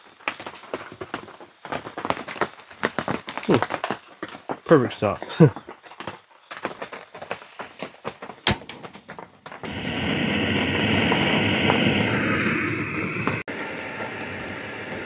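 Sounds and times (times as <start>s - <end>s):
gas stove burner hissing: 9.6s - 15.0s.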